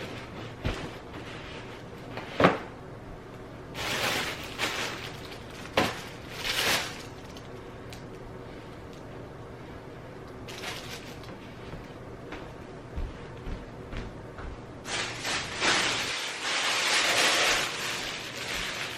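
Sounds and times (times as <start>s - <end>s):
packages knocking down: 3.8s - 7.4s, 14.9s - 18.9s
packaging rustling: 3.8s - 8.2s, 10.5s - 11.4s, 14.9s - 18.9s.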